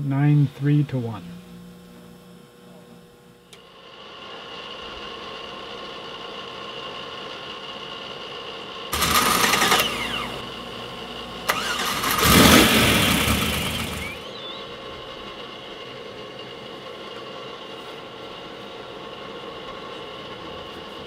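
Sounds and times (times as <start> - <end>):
steady hum: 0.0 - 21.0
engine starting and revving: 8.9 - 10.7, 11.4 - 14.4.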